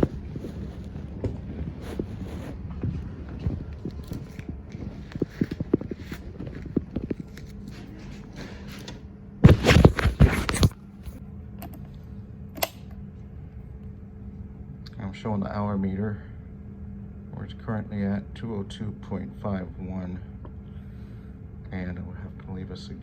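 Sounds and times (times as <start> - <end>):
floor cleaning machine humming: 0.0 - 9.6.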